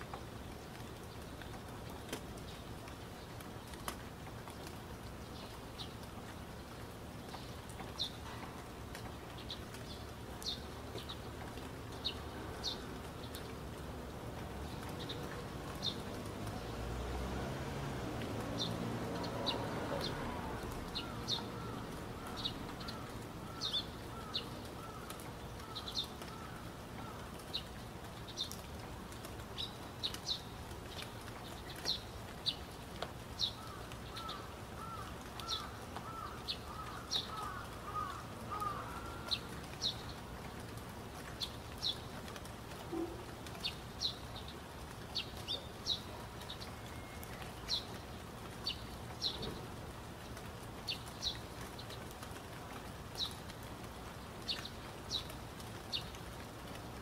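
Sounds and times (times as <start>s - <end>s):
birds chirping: 33.4s - 40.2s.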